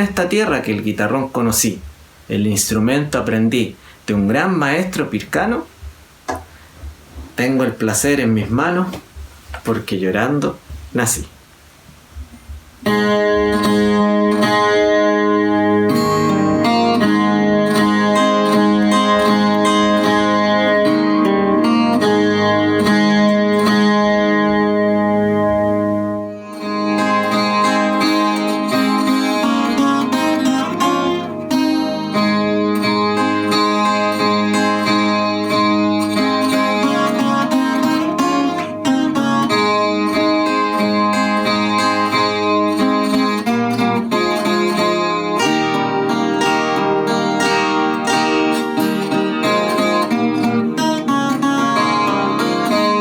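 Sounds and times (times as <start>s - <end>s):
plucked guitar chords: 12.2s - 53.0s.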